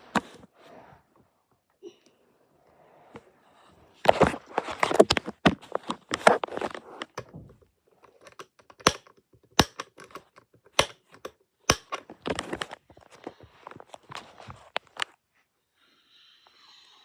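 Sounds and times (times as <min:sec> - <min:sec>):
rustling and scraping: 0:02.8 - 0:15.2
desk fan clicks and knocks: 0:07.2 - 0:12.4.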